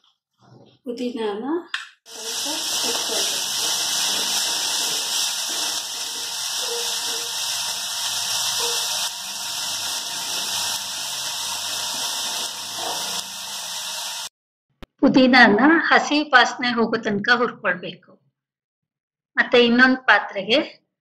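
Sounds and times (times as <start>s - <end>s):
ladle stirring in pan: 2.1s - 13.8s
leaves sizzling in hot oil: 2.1s - 14.3s.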